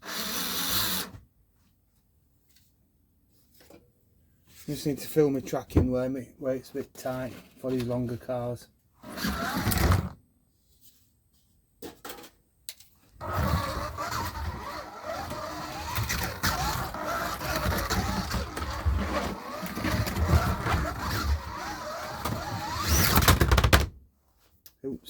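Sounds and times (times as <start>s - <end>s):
slot car motors whining: 13.2s - 23.5s.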